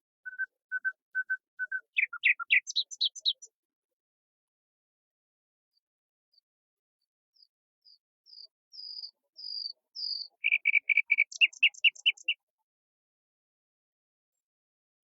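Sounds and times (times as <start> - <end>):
songbird singing: 0.2 - 3.5, 7.4 - 12.4.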